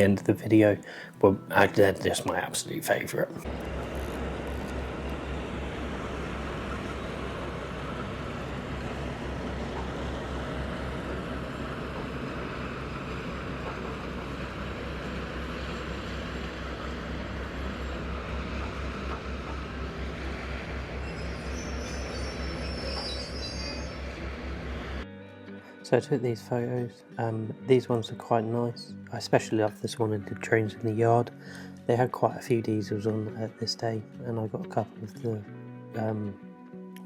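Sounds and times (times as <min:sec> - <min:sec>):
diesel locomotive engine rumbling: 0:00.0 - 0:25.0
faint high-pitched squeaks: 0:21.0 - 0:24.2.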